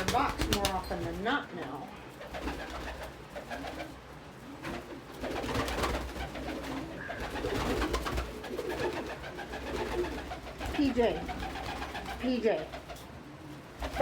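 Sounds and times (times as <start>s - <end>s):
scratching and shuffling: 0.0s - 14.0s
pigeons cooing: 2.0s - 14.0s.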